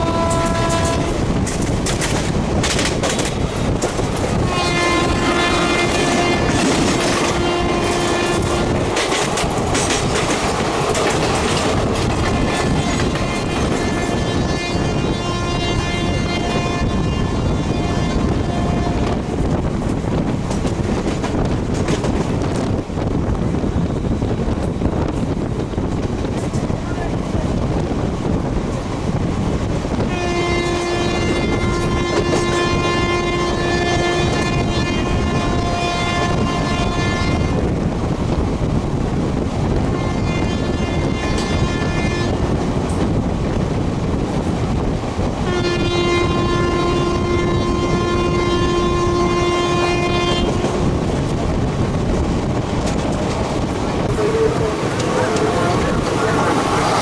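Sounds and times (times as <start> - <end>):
locomotive horn blasts: 0.0 - 1.2, 4.4 - 8.8, 12.4 - 19.2, 30.1 - 37.7, 39.9 - 42.5, 45.4 - 51.0, 54.1 - 57.0
train wheel and wind rush: 0.0 - 57.0.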